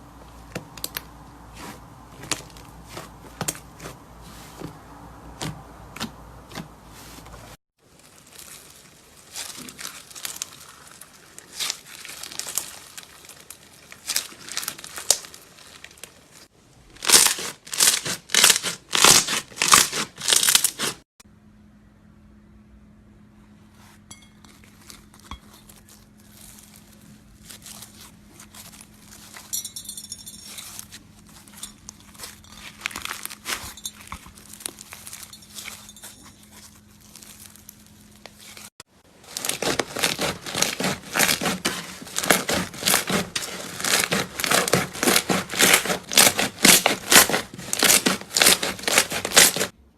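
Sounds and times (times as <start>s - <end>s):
slime squishing and crackling: 7.8s - 21.0s, 24.6s - 29.6s, 30.5s - 49.8s
faint steady hum: 21.3s - 40.5s.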